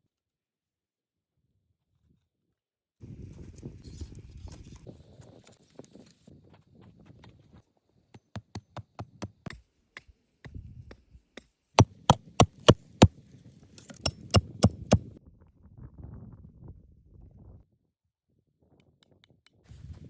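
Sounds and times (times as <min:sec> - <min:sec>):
hand tool knocking on wood: 0:11.8 - 0:13.0, 0:14.0 - 0:15.0.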